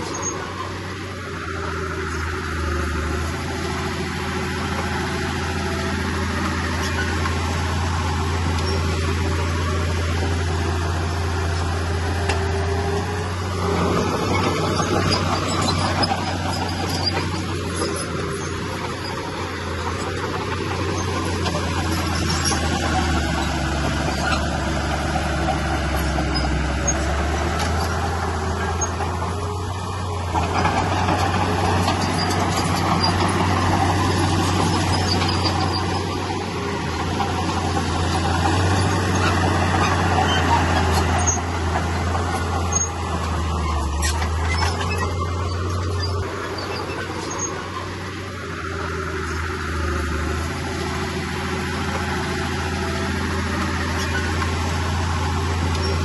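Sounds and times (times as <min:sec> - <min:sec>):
diesel earthmover engine drone: 0:00.0 - 0:56.0
rattling working noise: 0:00.0 - 0:56.0
faint high squeaks and clicks: 0:08.4 - 0:09.0, 0:30.4 - 0:36.3, 0:38.4 - 0:48.0, 0:53.6 - 0:54.6, 0:55.6 - 0:56.0.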